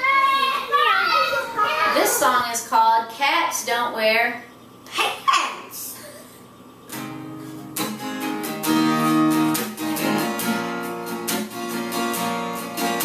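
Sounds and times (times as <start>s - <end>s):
acoustic guitar strumming chords: 6.9s - 13.0s.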